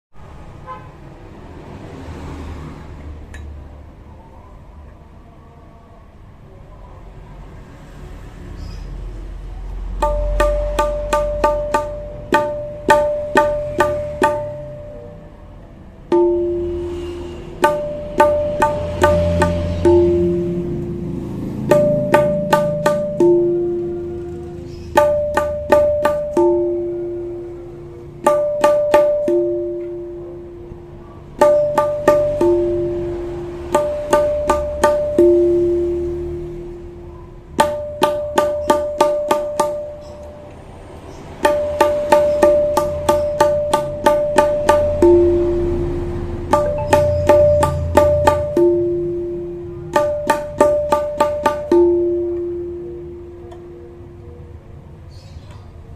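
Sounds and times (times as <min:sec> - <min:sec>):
tabla-like drumming: 0:09.7 - 0:15.4, 0:16.0 - 0:53.8.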